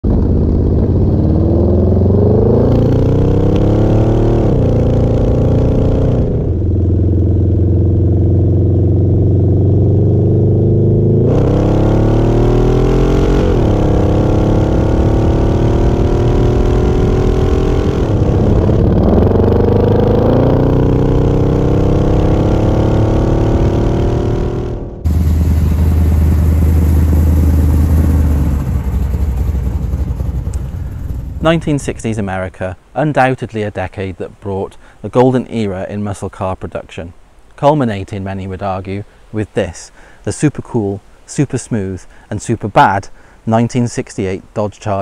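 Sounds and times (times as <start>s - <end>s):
car engine accelerating through gears: 0.0s - 31.4s.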